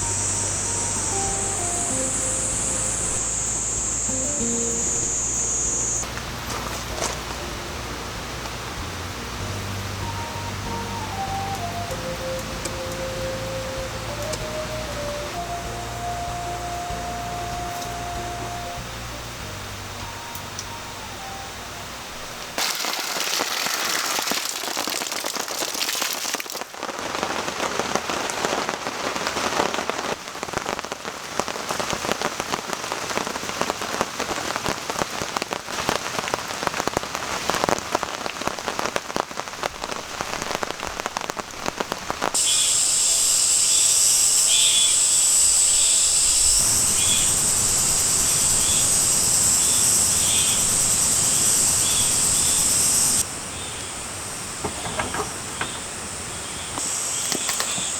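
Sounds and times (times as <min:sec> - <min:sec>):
cicadas buzzing: 0:00.0 - 0:25.9, 0:31.8 - 0:57.9
rain pattering: 0:00.0 - 0:57.9.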